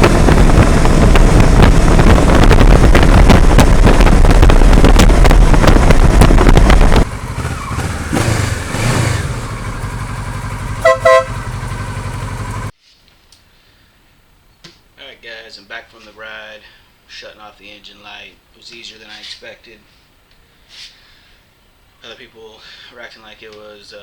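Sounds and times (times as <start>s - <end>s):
wind buffeting microphone: 0.0s - 8.4s
motorcycle engine revving: 0.0s - 12.7s
horn toots: 7.4s - 12.6s.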